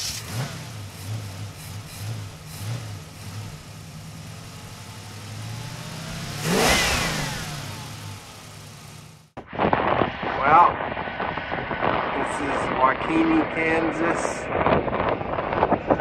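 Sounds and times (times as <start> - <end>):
car engine pulsing: 0.0 - 10.2.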